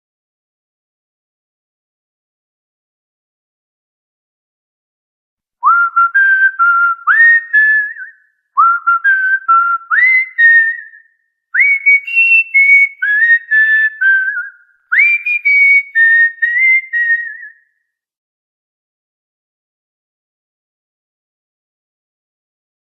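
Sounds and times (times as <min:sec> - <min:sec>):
cockatiel whistling a tune: 0:05.6 - 0:11.0, 0:11.6 - 0:17.6.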